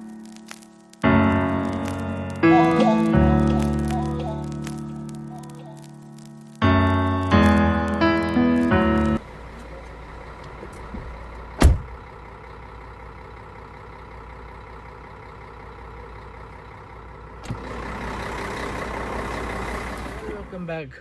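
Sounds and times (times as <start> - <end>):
piano music: 0.0 - 9.2
car engine idling: 8.6 - 21.0
sharp thump: 10.6 - 12.0.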